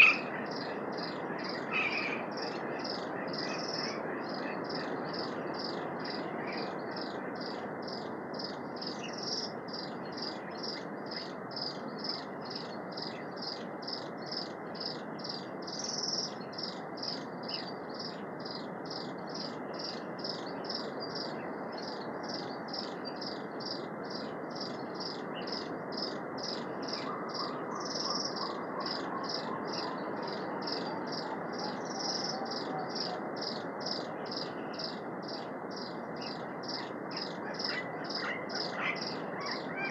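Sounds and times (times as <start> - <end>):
insect chirping: 30.2 - 38.7.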